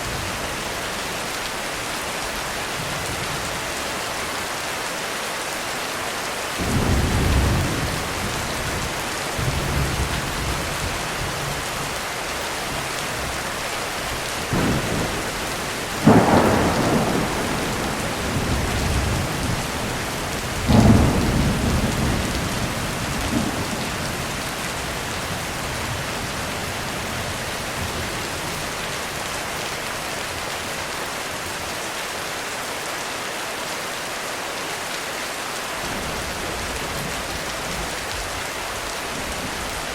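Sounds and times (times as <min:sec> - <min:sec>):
steady rain: 0:00.0 - 0:39.9
thunderclaps: 0:14.5 - 0:26.5
thunder rumbling: 0:14.5 - 0:28.7.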